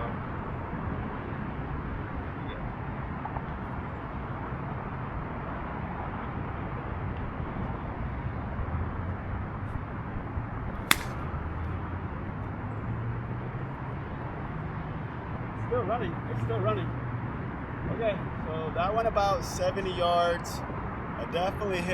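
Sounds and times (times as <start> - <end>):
distant traffic: 9.6 - 14.6
golf club striking ball: 10.9 - 11.5.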